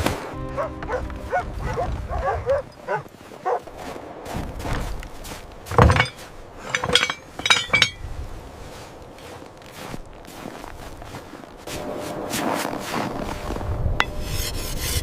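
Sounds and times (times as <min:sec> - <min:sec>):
sharp clinking impacts: 0:05.7 - 0:08.1.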